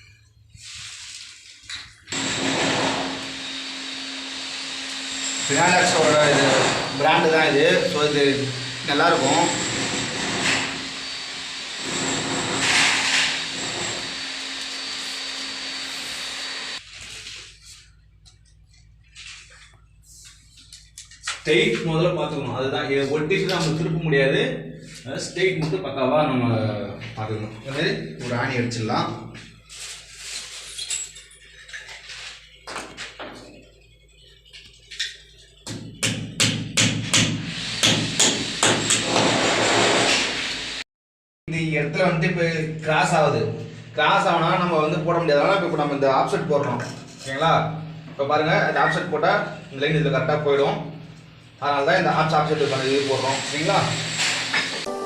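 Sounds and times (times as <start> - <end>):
power tool motor running: 2.1 - 16.8, 52.6 - 54.9
hammer hitting nail: 35.7 - 39.4.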